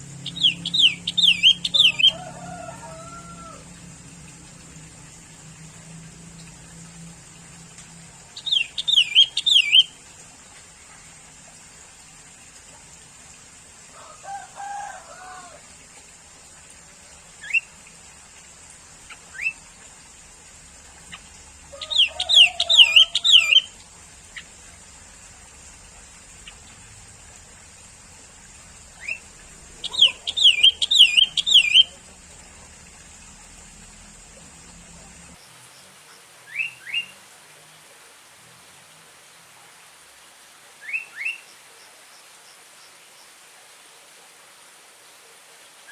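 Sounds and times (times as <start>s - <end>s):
bulbul singing bubbly notes: 0.0s - 2.2s, 8.3s - 10.0s, 28.7s - 35.4s
steady high hiss: 0.0s - 45.9s
short rising chirps: 0.2s - 2.2s
soft low bird call: 29.0s - 32.1s.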